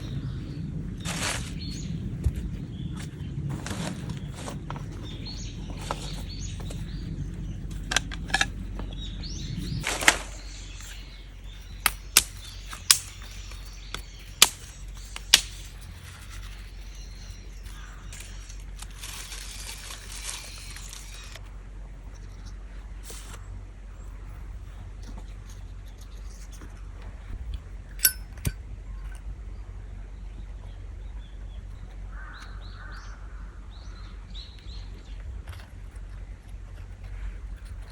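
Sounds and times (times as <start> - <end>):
birds chirping: 0.0 - 37.9
low rumble: 0.0 - 37.9
firewood cracking: 1.0 - 9.0, 9.8 - 21.4.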